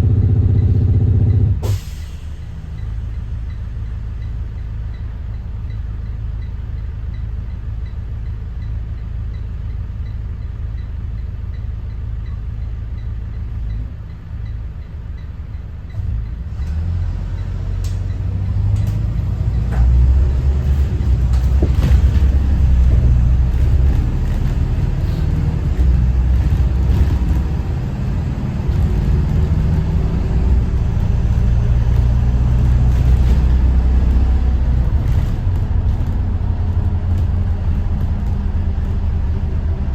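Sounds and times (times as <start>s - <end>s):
diesel bus engine rumbling: 0.0s - 39.9s
road noise: 0.0s - 39.9s.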